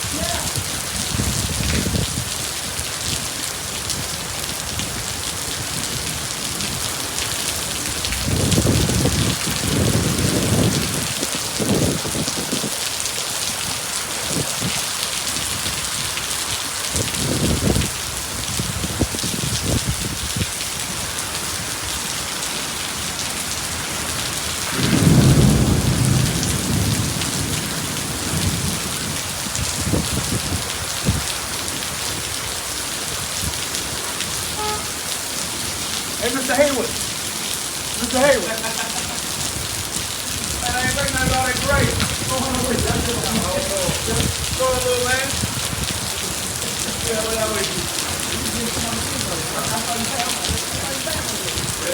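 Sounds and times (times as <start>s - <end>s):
heavy rain falling: 0.0s - 51.9s
thunder rolling: 7.7s - 12.8s, 24.5s - 31.2s, 38.4s - 51.8s.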